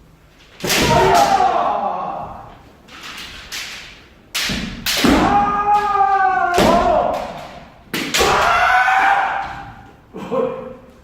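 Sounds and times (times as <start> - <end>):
bamboo sword strikes: 0.6 - 1.5, 3.5 - 8.6
person shouting: 0.8 - 2.5, 5.1 - 7.3.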